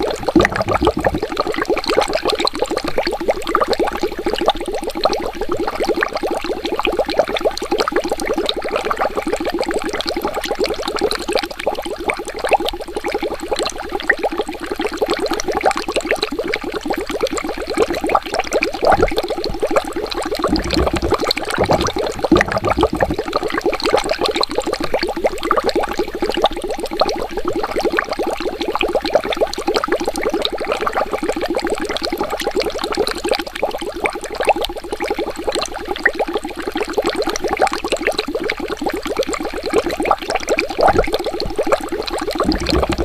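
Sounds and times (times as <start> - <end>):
water bubbling: 0.0 - 2.0, 18.5 - 28.2, 40.8 - 43.0
deep water gurgles: 0.0 - 43.0.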